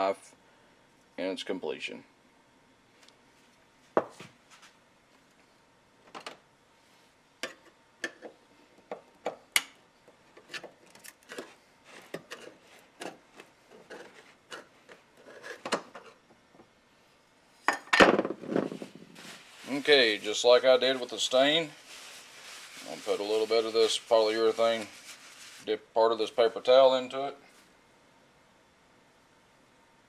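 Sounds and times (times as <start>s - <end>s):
rustling scrape: 13.7s - 15.6s, 18.6s - 25.7s.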